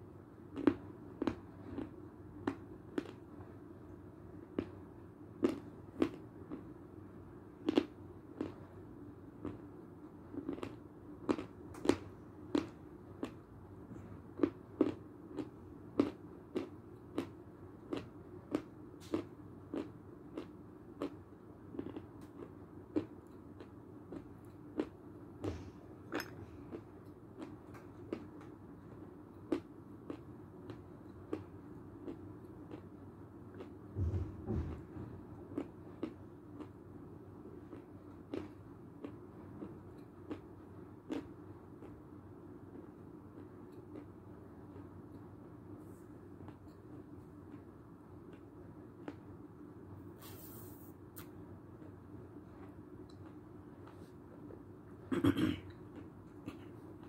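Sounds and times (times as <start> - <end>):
chalk crunching while chewed: 7.6 - 8.7, 10.3 - 13.5, 14.4 - 25.0.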